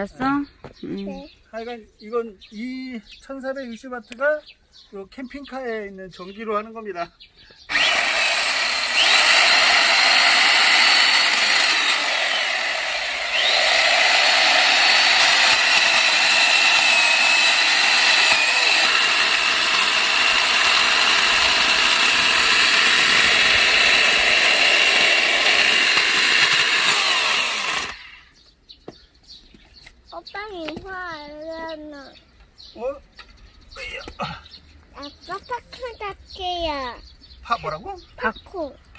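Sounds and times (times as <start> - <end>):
electric chainsaw cutting log: 7.7 - 28.3.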